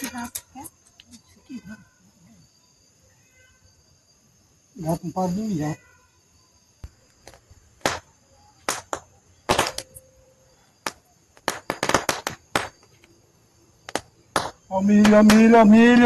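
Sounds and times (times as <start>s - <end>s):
campfire crackling and popping: 6.8s - 10.0s, 10.8s - 13.2s, 13.8s - 16.0s.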